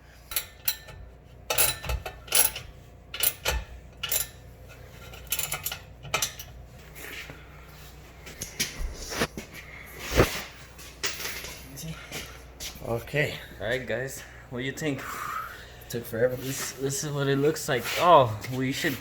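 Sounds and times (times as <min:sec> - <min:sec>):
metal clinks and clanks: 0:00.2 - 0:06.6.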